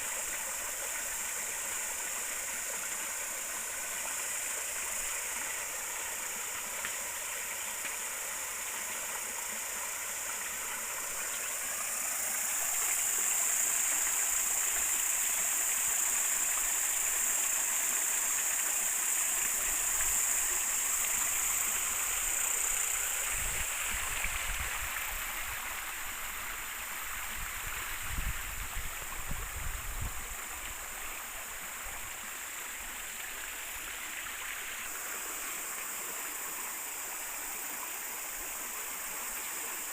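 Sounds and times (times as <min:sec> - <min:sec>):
river water rushing: 0:30.2 - 0:39.9.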